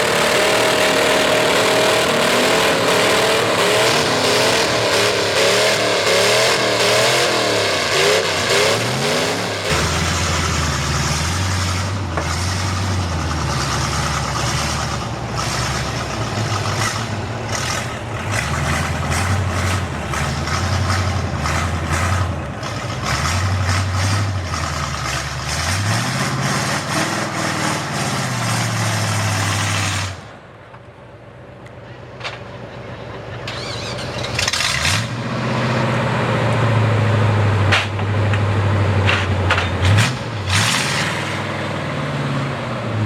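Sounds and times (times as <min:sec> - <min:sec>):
exhaust cracks: 0:00.0 - 0:27.4
truck engine running rough: 0:00.0 - 0:43.0.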